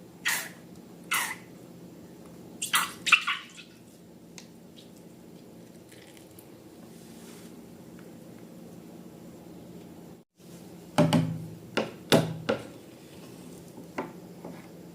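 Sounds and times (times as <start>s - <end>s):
faint steady hum: 0.0s - 14.9s.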